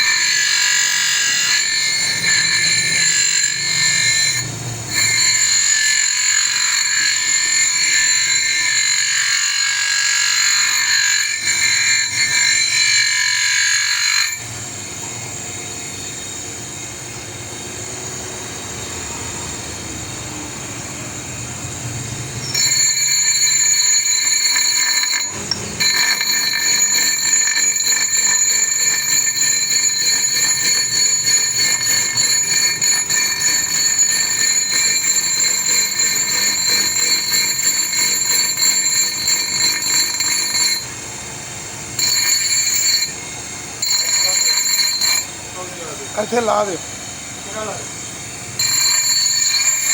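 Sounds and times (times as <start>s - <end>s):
electric power tool whining: 22.4s - 46.8s.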